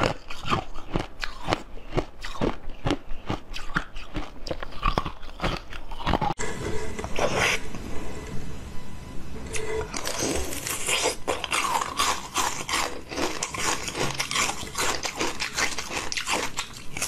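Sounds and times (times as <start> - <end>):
crunching bites of crisp food: 0.0 - 6.3, 9.9 - 17.0.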